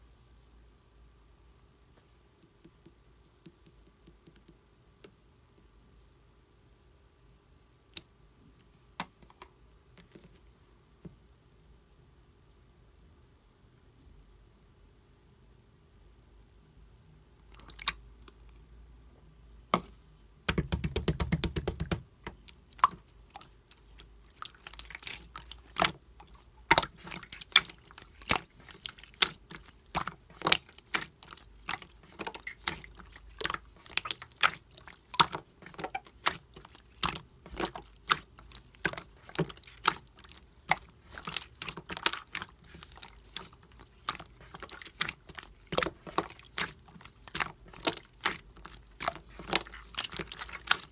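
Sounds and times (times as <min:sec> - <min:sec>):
slime squished by hand: 0:20.5 - 0:50.9.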